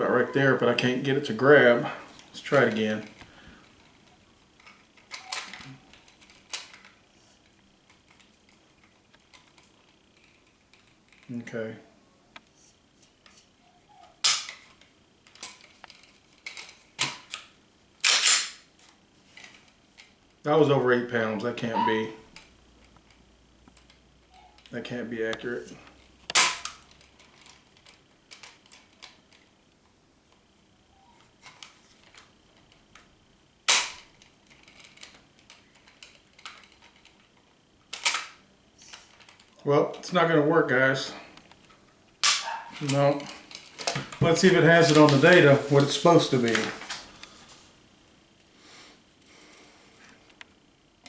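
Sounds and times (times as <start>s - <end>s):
small handling clicks: 31.2s - 39.6s
pistol dry-fire snap: 42.2s - 42.5s.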